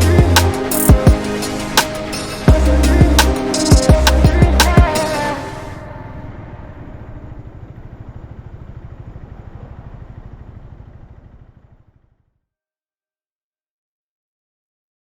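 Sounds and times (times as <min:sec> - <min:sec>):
music: 0:00.0 - 0:06.8
motorcycle engine idling: 0:06.4 - 0:12.3.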